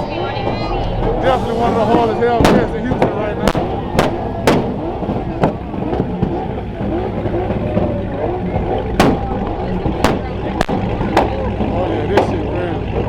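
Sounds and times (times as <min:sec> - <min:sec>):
sharp bangs: 0:00.0 - 0:07.3, 0:08.9 - 0:11.4
car engine running loudly: 0:00.0 - 0:13.0.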